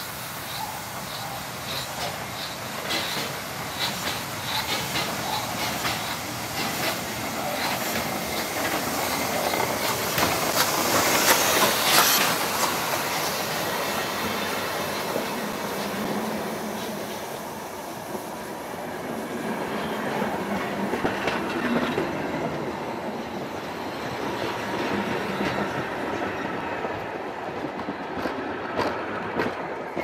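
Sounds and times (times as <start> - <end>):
train coaches rumbling past: 0.0 - 30.0
wheels clacking over rail joints: 1.6 - 13.2.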